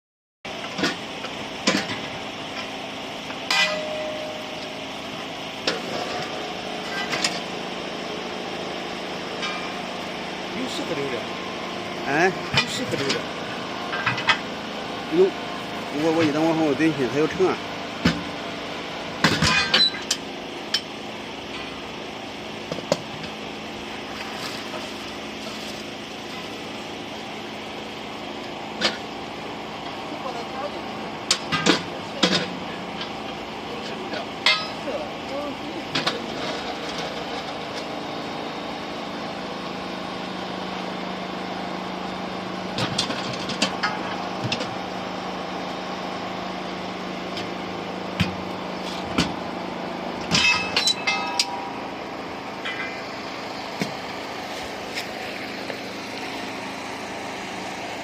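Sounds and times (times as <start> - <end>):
steady machine hum: 0.5 - 58.0
steel parts clanking: 3.5 - 4.6, 34.4 - 35.0, 50.2 - 51.9, 52.6 - 53.1.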